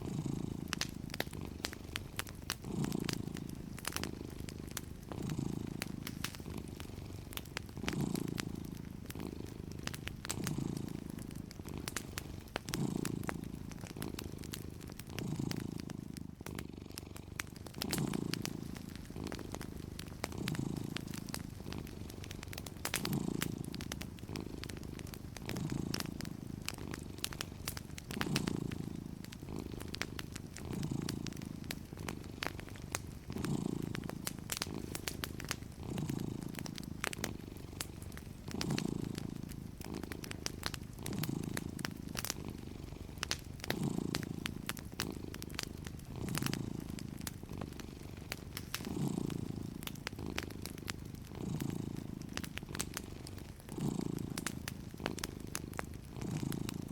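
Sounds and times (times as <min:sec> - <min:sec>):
cat purring: 0:00.0 - 0:56.9
wood fire crackling: 0:00.0 - 0:56.9.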